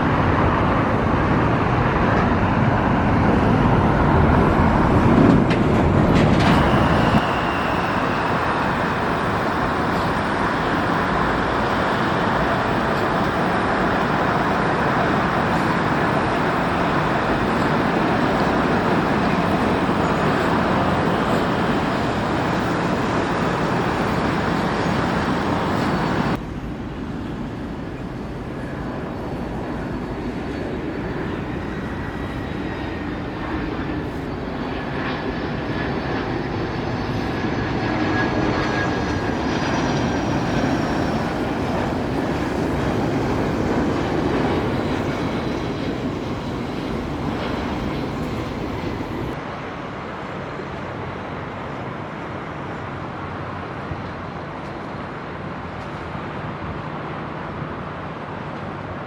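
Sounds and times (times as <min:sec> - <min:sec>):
jet engines rushing: 0:00.0 - 0:49.6
faint falling whine: 0:05.4 - 0:49.4.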